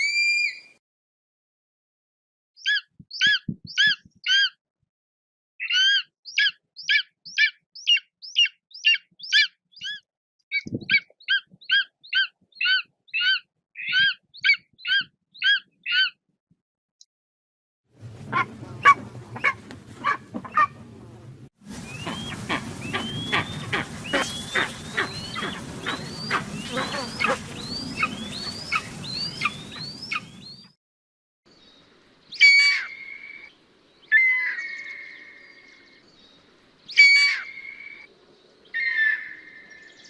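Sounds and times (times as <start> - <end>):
bird of prey calling: 5.6 - 16.2, 21.8 - 30.7, 36.9 - 38.1, 38.7 - 40.0
short upslurred bird calls: 21.7 - 30.7.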